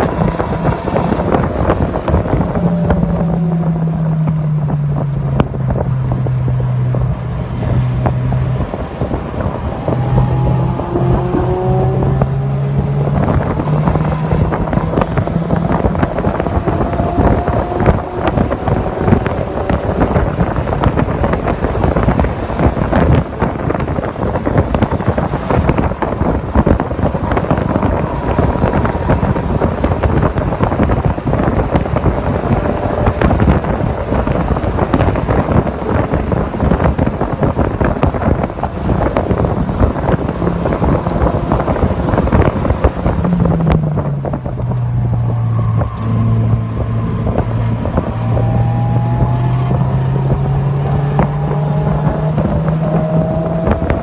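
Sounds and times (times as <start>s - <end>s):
car engine drone: 0.0s - 54.0s
wind buffeting microphone: 0.0s - 54.0s
faint rising whines: 6.0s - 43.7s.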